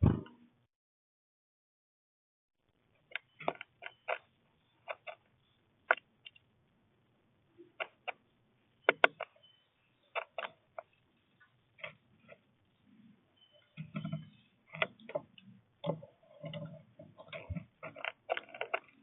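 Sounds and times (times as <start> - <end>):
birds pecking at a feeder: 3.1 - 6.4, 8.9 - 19.0.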